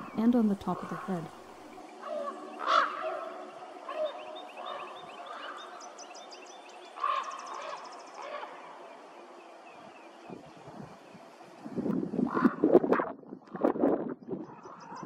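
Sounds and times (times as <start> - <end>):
sharp bird calls: 0.0 - 11.1.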